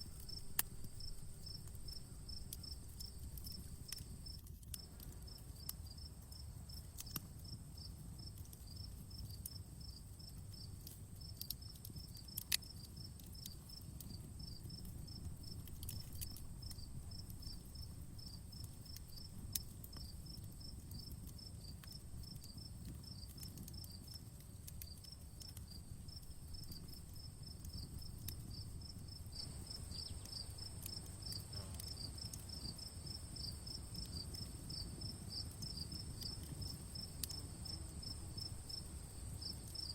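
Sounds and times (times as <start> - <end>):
crickets chirping: 0.0 - 7.6, 8.7 - 24.1, 24.8 - 39.9
campfire crackling and popping: 0.0 - 39.9
high insect whine: 28.5 - 39.9.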